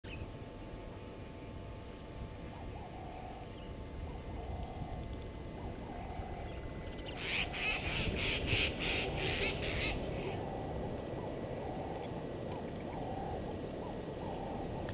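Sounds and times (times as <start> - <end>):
faint warbling bird calls: 0.1 - 14.9
steady low rumble: 0.1 - 14.9
bird harsh scratchy calls: 7.1 - 10.7.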